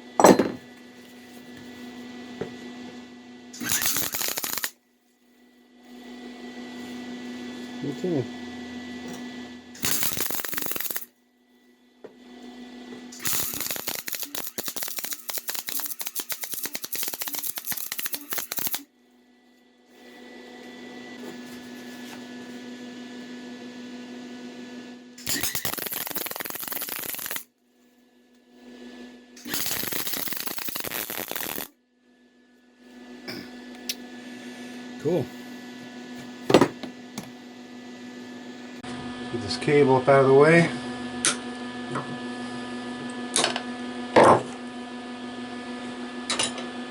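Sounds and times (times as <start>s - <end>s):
welding arc crackling: 3.6s - 4.8s, 9.8s - 11.1s, 13.2s - 18.9s, 25.2s - 27.5s, 29.4s - 31.8s.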